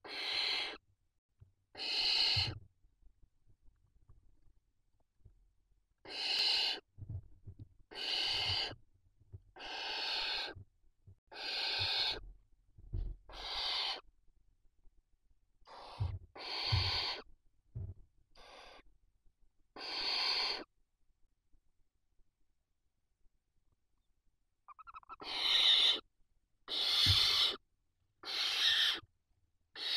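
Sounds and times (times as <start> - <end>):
owl chicks hissing begging calls: 0.0 - 0.8, 1.8 - 2.6, 6.0 - 6.8, 7.9 - 8.8, 9.6 - 10.6, 11.3 - 12.2, 13.3 - 14.0, 15.7 - 17.3, 18.4 - 18.8, 19.8 - 20.7, 24.7 - 26.0, 26.7 - 27.6, 28.2 - 29.0.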